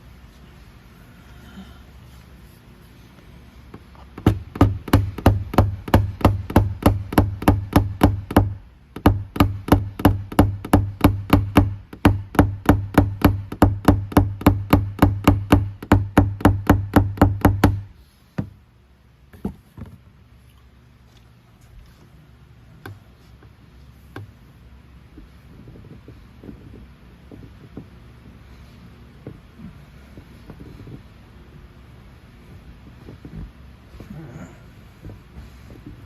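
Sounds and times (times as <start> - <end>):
hammer tapping punch on car door: 4.2 - 18.5.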